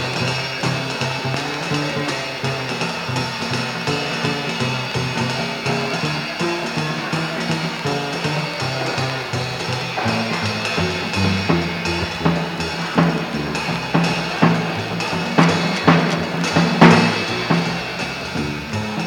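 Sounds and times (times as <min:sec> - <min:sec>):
snare and bass drum hits: 0:08.3 - 0:18.8
double bass playing low notes: 0:08.9 - 0:19.0.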